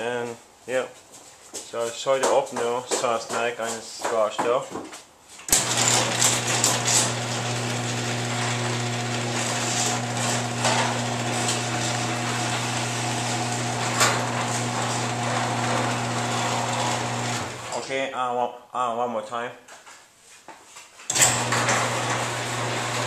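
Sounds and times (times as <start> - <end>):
garage door opener motor hum: 5.5 - 17.8, 21.1 - 23.0
door rattling along track: 5.5 - 17.9.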